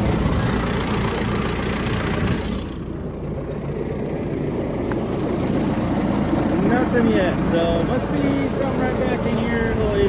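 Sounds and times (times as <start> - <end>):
tractor diesel engine idling: 0.0 - 10.0.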